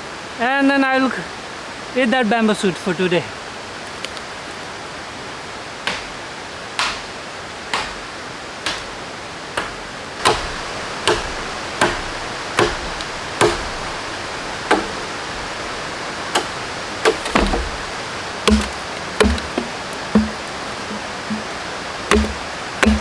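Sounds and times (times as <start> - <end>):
blade chopping bamboo: 9.6 - 23.0.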